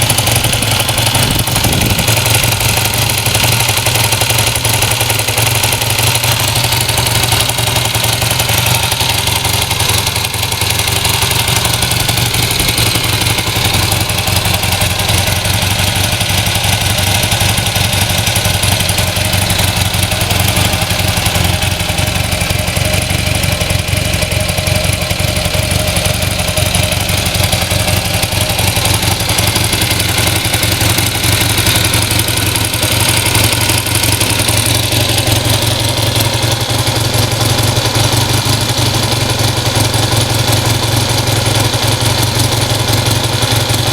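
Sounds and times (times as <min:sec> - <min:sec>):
motorcycle engine idling: 0:00.0 - 0:43.9.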